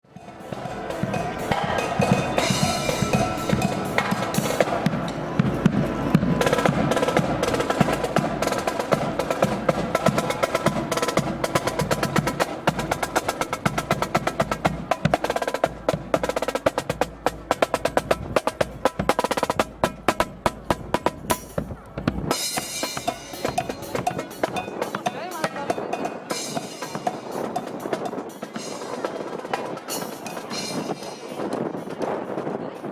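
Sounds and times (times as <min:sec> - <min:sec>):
bass drum beats: 0:00.2 - 0:15.2
snare drum rolls: 0:00.2 - 0:32.8.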